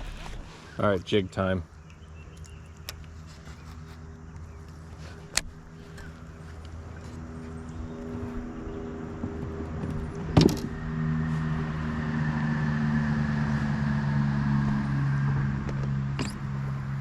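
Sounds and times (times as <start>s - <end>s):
motor humming: 0.0s - 0.6s.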